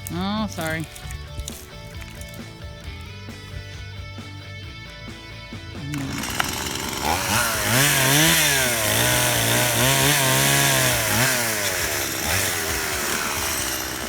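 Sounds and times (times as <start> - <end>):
chainsaw revving: 5.6 - 14.0.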